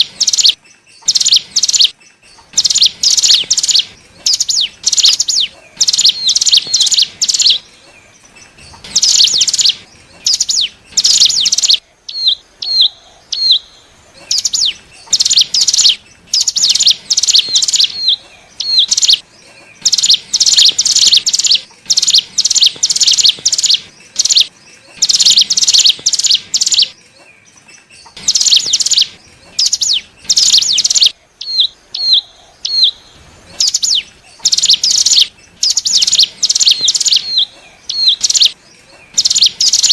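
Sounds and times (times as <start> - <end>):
bird chattering song: 0.0 - 39.9
bird hooked whistles: 2.5 - 7.6, 8.7 - 12.9, 14.3 - 19.2, 19.8 - 27.0, 28.1 - 32.2, 33.6 - 39.9.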